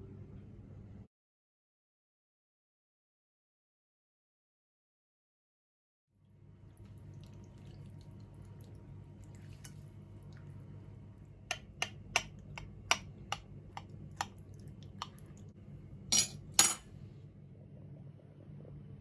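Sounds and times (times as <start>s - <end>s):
steady low hum: 6.2s - 19.0s
kitchenware clinking and knocking: 16.1s - 16.8s
kitchenware clattering: 16.1s - 16.9s.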